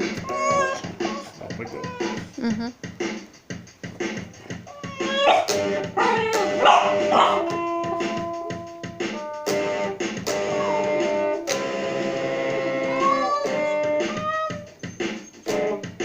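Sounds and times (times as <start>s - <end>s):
guitar playing: 0.0s - 2.6s, 5.0s - 14.7s.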